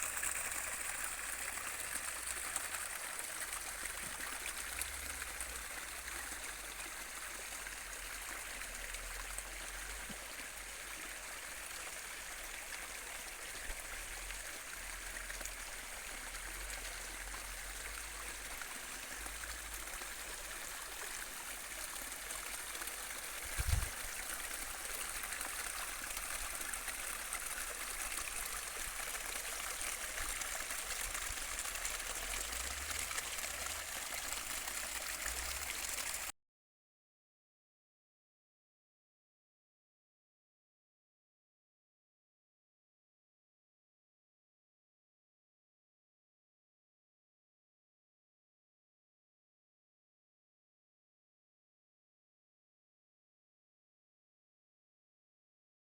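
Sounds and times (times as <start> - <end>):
stream water rushing: 0.0 - 6.0, 16.6 - 36.3.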